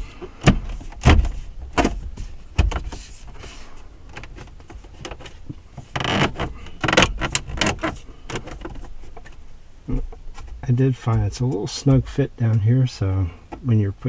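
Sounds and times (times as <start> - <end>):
plastic trim clicking and scraping: 4.1 - 9.4.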